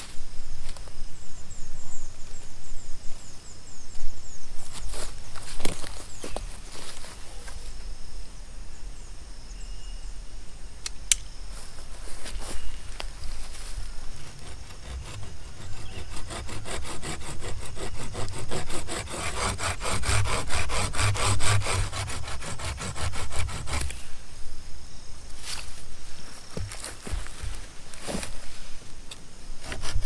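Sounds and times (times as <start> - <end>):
hand saw cutting wood: 13.9 - 24.1, 29.6 - 30.0.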